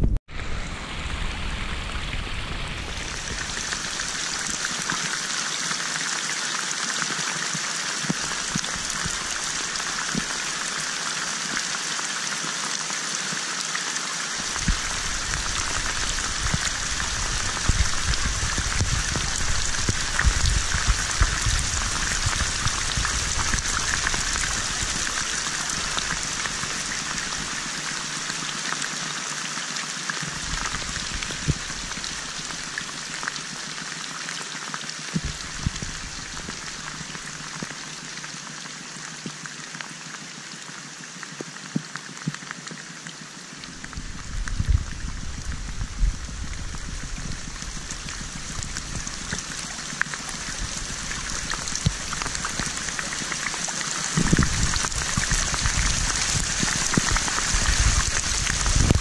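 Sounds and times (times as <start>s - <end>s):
wind rumble on microphone: 0.0s - 4.6s, 14.5s - 27.8s, 30.3s - 32.6s, 35.2s - 37.2s, 43.7s - 59.0s
rain falling on water: 0.0s - 59.0s.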